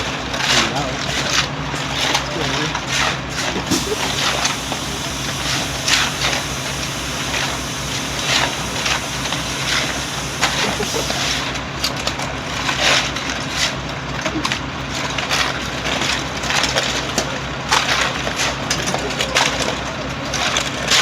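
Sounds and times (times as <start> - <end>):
tractor engine running: 3.5 - 12.2.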